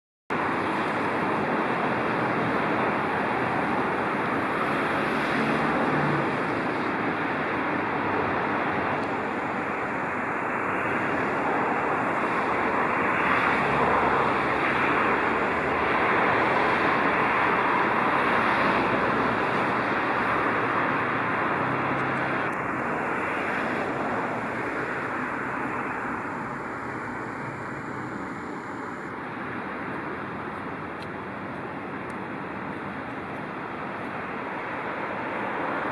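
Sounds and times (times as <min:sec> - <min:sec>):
wind: 0:00.3 - 0:35.9
waves: 0:00.4 - 0:21.7.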